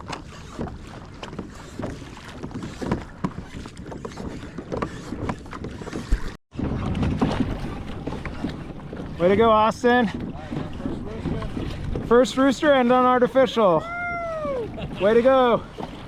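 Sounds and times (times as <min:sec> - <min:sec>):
wind noise on microphone: 0:00.0 - 0:12.1
water splashing around a kayak: 0:00.0 - 0:16.0.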